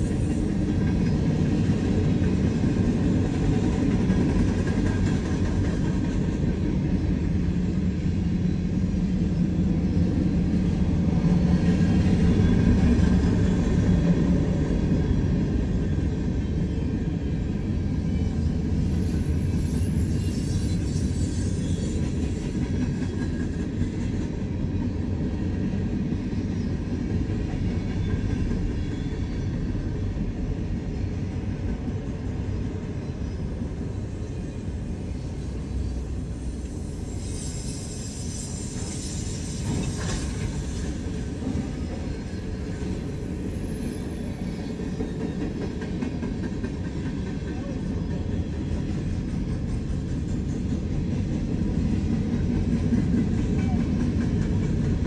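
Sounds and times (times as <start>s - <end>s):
freight train wheels rumbling on rail: 0.0s - 55.0s
faint high wheel squeal: 17.6s - 23.8s, 35.4s - 46.0s.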